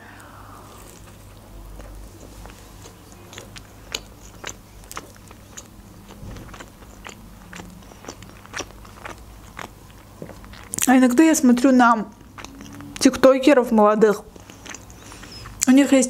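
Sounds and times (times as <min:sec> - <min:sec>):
crunchy chewing: 0:00.7 - 0:13.3, 0:14.1 - 0:15.8
wet mouth clicks: 0:00.9 - 0:11.0, 0:12.1 - 0:13.1, 0:14.2 - 0:15.8.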